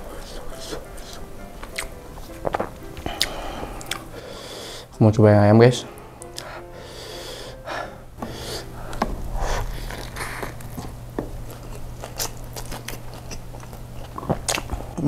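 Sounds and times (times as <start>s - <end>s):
chewing with wet mouth clicks: 1.6s - 4.1s, 10.4s - 14.8s.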